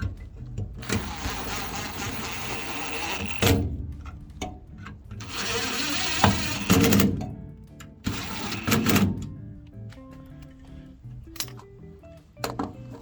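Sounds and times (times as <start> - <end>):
power tool running: 0.8 - 3.7, 5.2 - 7.3, 8.0 - 9.3.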